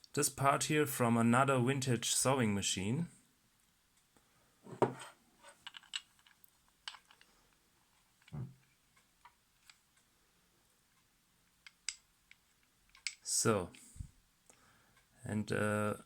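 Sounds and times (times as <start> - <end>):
metal parts clicking and clinking: 5.4 - 7.3, 11.6 - 13.3.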